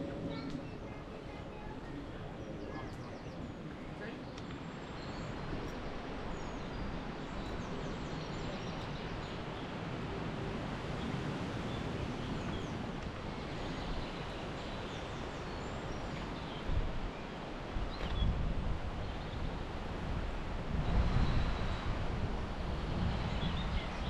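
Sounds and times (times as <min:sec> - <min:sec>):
wind through woodland: 0:00.0 - 0:24.0.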